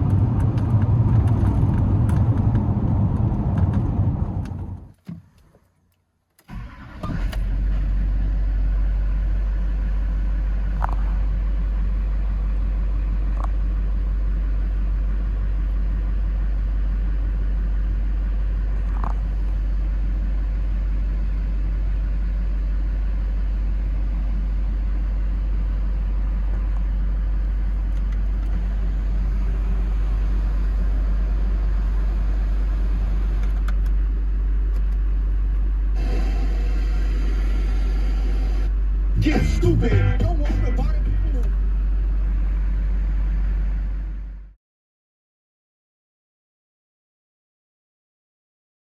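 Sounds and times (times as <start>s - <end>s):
engine cranking and idling: 6.4s - 44.2s.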